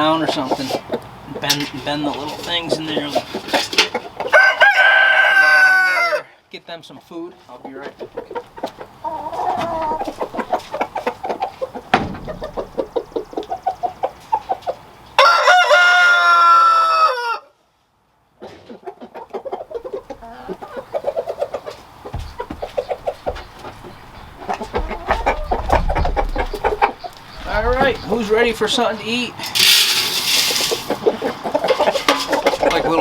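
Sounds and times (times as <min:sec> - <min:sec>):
chickens clucking: 0:00.0 - 0:06.2, 0:06.8 - 0:17.3, 0:18.2 - 0:33.0
rooster crowing: 0:04.3 - 0:06.3, 0:15.2 - 0:17.5.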